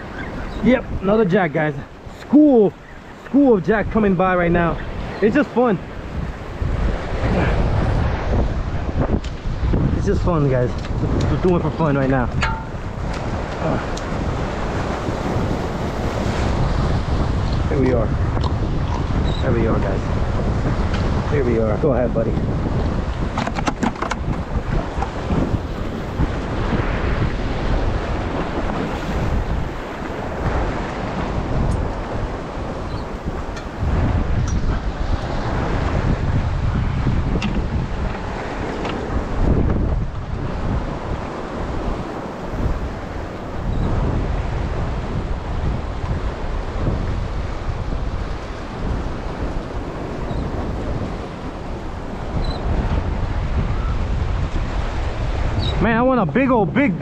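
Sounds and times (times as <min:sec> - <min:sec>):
surf rushing: 0:00.0 - 0:57.0
wind buffeting microphone: 0:00.0 - 0:57.0.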